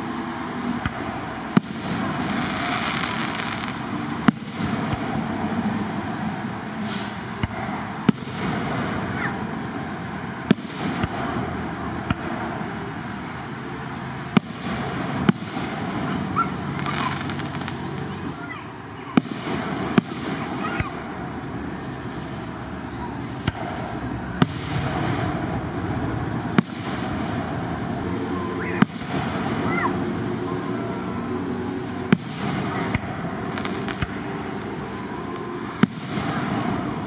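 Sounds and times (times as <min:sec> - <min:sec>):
steady background noise: 0:00.0 - 0:37.0
firework shells bursting: 0:00.5 - 0:09.4, 0:32.1 - 0:34.7.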